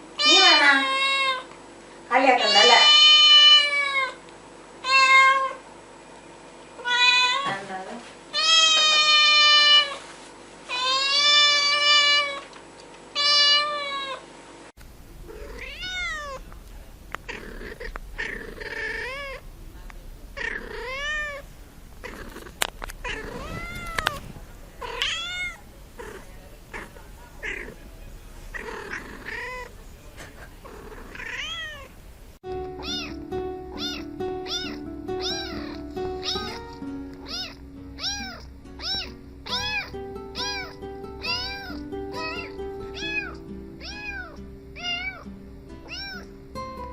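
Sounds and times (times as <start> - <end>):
cats meowing: 0.2 - 1.5, 2.4 - 4.2, 4.8 - 5.6, 6.8 - 7.5, 8.4 - 10.0, 10.7 - 12.5, 13.2 - 14.2, 15.2 - 32.0, 32.8 - 45.2, 45.8 - 46.4
background music: 32.4 - 46.9.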